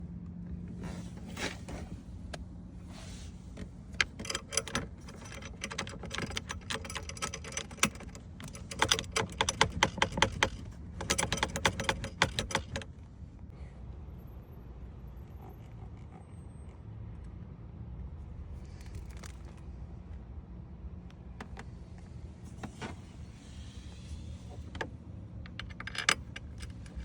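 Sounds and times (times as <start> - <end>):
dashboard rattling: 3.6 - 12.9.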